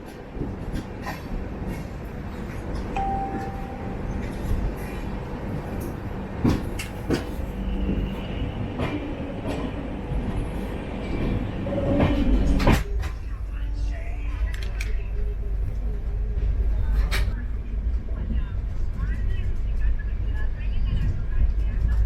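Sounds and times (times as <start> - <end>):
train wheels rumbling on rail: 0.0 - 22.0
train wheels clicking and knocking: 5.8 - 9.8.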